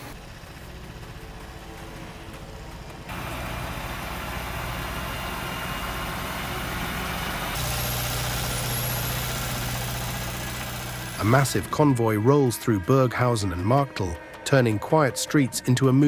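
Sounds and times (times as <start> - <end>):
vehicle engine running: 0.0 - 12.0
outdoor noise: 0.0 - 16.0.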